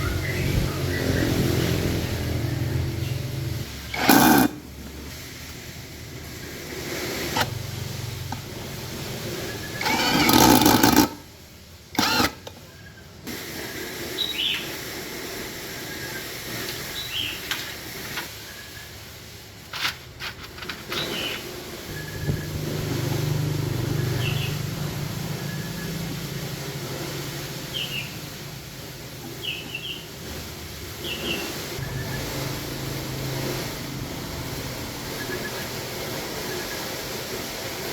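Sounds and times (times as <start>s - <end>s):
birds chirping: 0.0s - 4.0s, 21.0s - 26.6s, 27.6s - 28.3s, 29.2s - 30.2s, 31.0s - 32.3s
grass trimmer engine: 0.3s - 4.8s, 6.7s - 11.2s, 12.0s - 12.5s, 21.9s - 27.9s.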